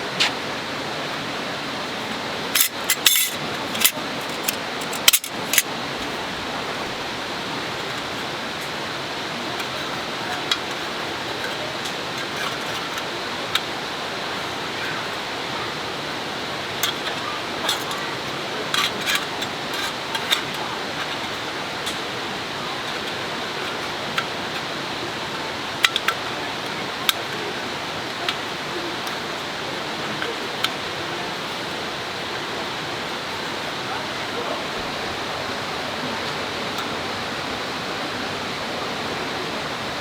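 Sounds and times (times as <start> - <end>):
river water rushing: 0.0 - 40.0
light clicks and clinks: 2.5 - 6.2.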